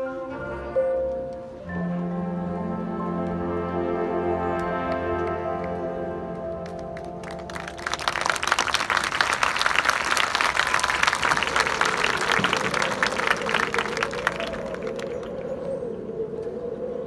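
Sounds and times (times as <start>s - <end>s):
crowd applause: 6.6s - 15.7s.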